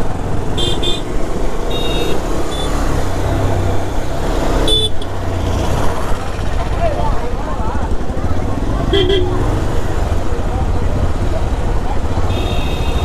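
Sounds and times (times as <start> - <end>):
motorcycle engine rumble: 0.0 - 13.0
road noise: 0.0 - 13.0.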